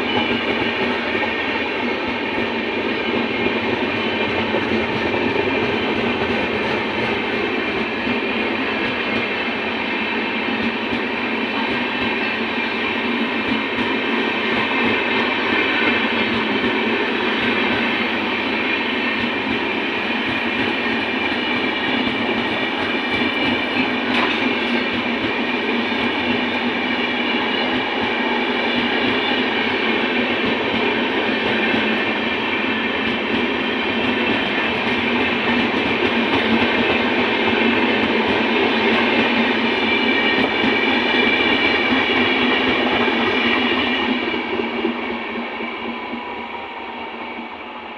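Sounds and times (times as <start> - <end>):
train wheels rushing on rails: 0.0 - 47.9.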